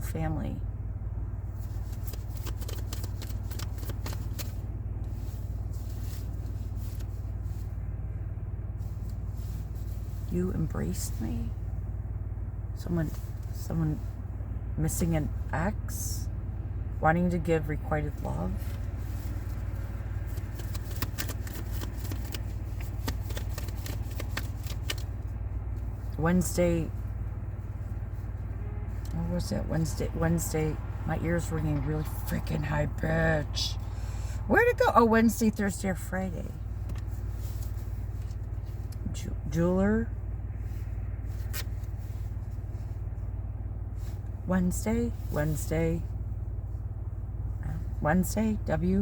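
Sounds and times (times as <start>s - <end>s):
low hum: 0.0s - 49.0s
cards being shuffled: 1.6s - 7.2s, 18.7s - 25.9s, 41.3s - 42.4s.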